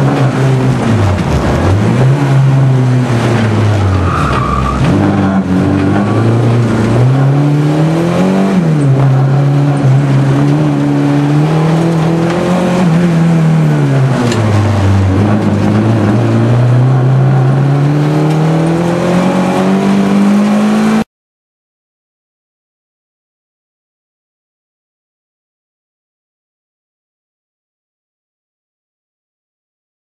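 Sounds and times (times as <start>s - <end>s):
car engine revving: 0.0s - 21.1s.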